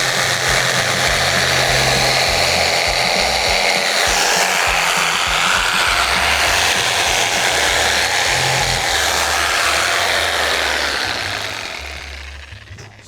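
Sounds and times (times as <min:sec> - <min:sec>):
electric tool whirring: 0:00.0 - 0:13.0.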